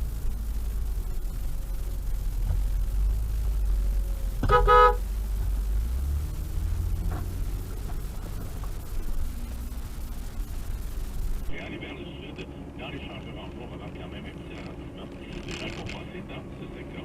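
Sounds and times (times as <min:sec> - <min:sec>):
car driving rumble: 0:00.0 - 0:17.0
car horn blast: 0:04.4 - 0:05.2.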